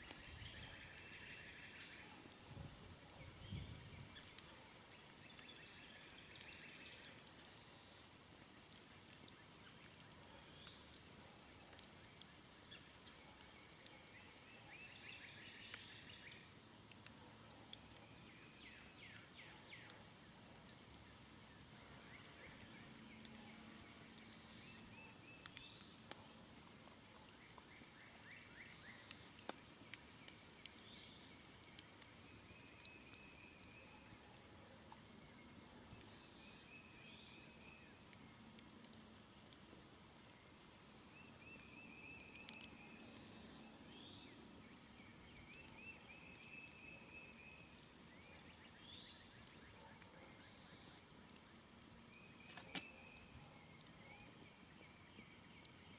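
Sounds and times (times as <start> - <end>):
trilled bird song: 0.0 - 2.1, 12.6 - 16.5, 17.9 - 19.9, 27.2 - 55.9
campfire crackling and popping: 0.0 - 55.9.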